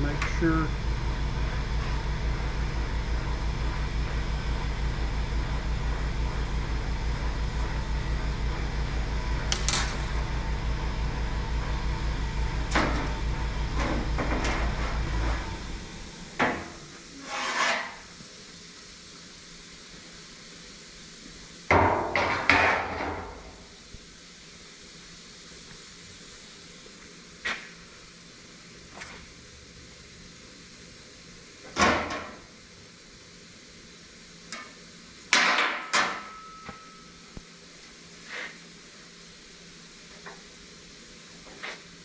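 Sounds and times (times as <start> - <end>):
low pulsing machine hum: 0.0 - 17.2.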